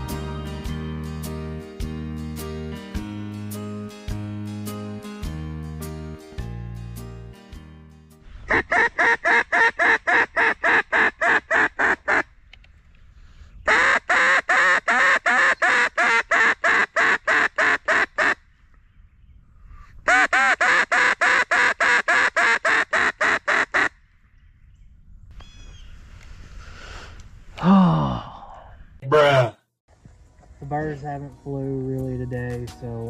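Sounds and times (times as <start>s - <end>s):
duck quacking: 8.5s - 12.3s, 13.7s - 18.4s.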